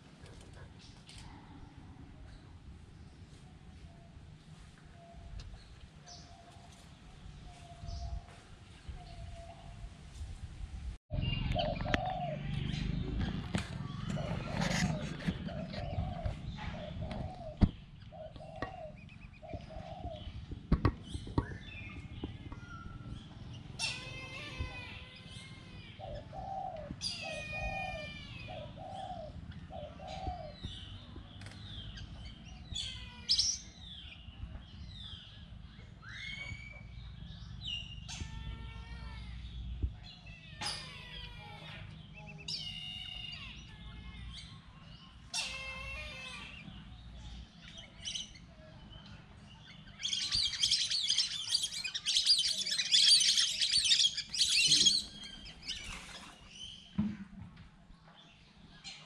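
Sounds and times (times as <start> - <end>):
birds chirping and whistling: 11.1 - 38.5, 41.7 - 43.7, 44.3 - 57.0.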